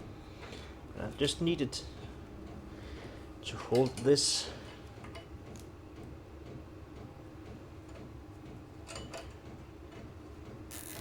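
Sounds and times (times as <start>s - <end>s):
steady low hum: 0.0s - 11.0s
faint clicks of handling parts: 3.5s - 5.7s.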